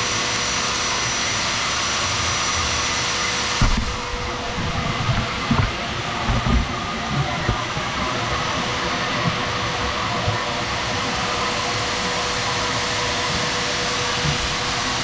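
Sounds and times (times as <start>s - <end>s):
shop vacuum running: 0.0s - 15.0s
dull knocks: 3.6s - 10.6s.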